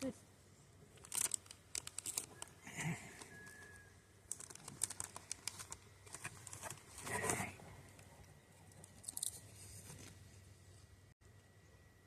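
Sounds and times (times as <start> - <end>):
plastic chip bag crackling: 1.0 - 2.4, 4.3 - 7.3.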